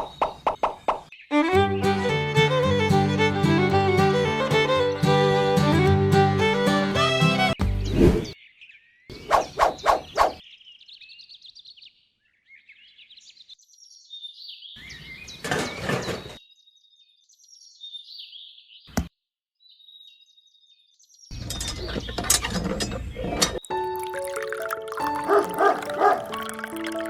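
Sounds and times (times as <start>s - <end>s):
small birds chirping: 6.4s - 23.7s, 24.9s - 26.9s.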